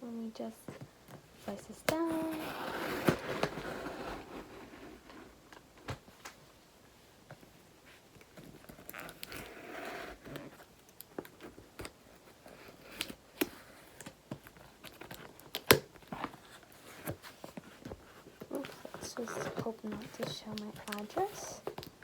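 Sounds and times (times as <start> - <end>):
package tearing and scraping: 2.0 - 5.3
packaging crinkling: 8.2 - 22.0.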